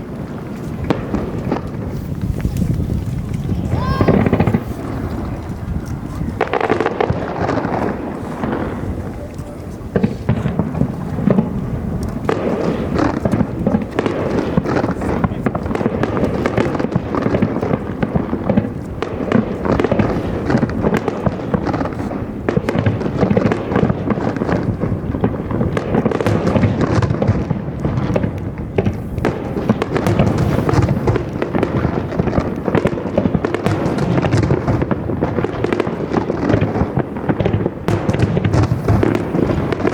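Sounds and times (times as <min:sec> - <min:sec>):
firework shells crackling pops: 0:00.0 - 0:39.9
low rumble of booms: 0:00.8 - 0:09.3.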